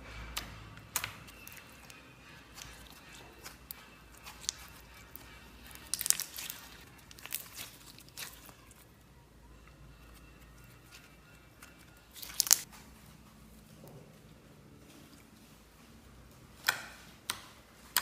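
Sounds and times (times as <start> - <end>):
slime crackling squeezed by hand: 0.9 - 9.0, 11.6 - 12.7.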